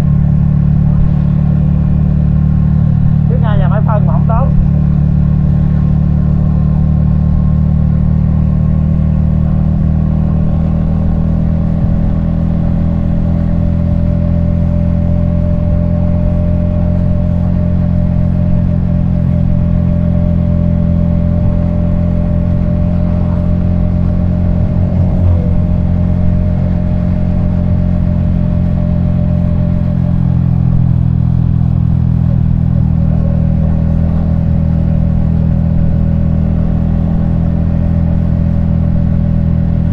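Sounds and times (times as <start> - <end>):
motorcycle engine cruising: 0.0 - 39.9
short falling tone: 23.4 - 28.1.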